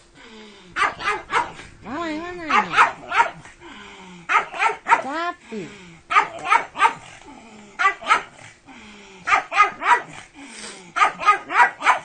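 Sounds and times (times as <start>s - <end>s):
dog barking sharply: 0.8s - 1.6s, 2.5s - 3.4s, 4.3s - 5.1s, 6.1s - 7.1s, 7.8s - 8.3s, 9.3s - 10.2s, 11.0s - 12.0s.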